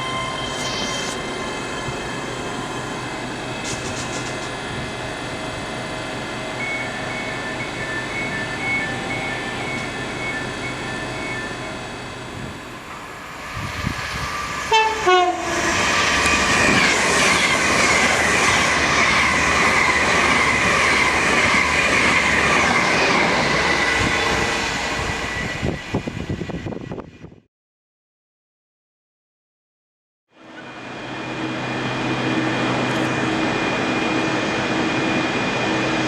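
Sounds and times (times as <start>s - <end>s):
train passing on rails: 0.0s - 27.3s, 30.4s - 36.0s
two-tone train horn: 14.6s - 15.8s.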